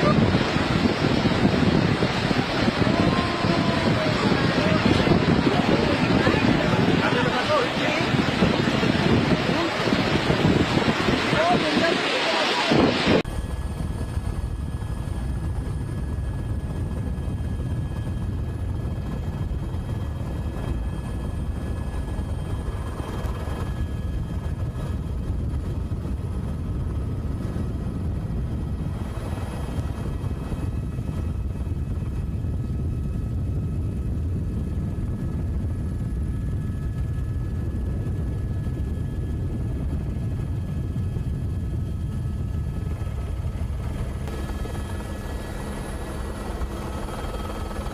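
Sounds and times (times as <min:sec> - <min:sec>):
faint steady whines: 0:00.0 - 0:47.9
engine running steadily: 0:37.0 - 0:47.9.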